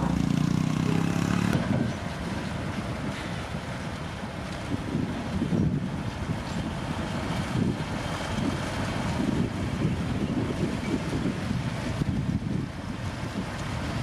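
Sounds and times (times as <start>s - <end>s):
heavy diesel machinery rumble: 0.0s - 14.0s
wind buffeting microphone: 0.0s - 14.0s.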